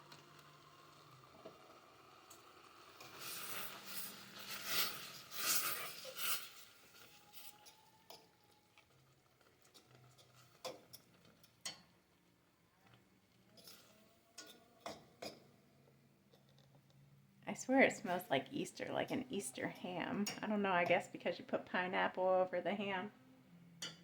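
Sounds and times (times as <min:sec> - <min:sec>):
pot boiling and bubbling: 0:00.0 - 0:15.6.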